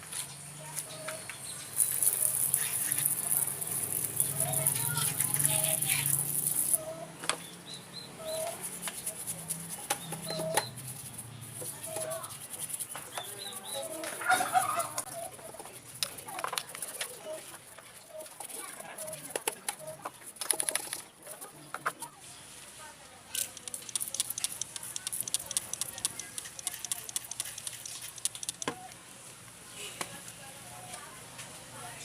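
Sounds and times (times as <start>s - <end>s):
chickens clucking: 13.0s - 15.7s.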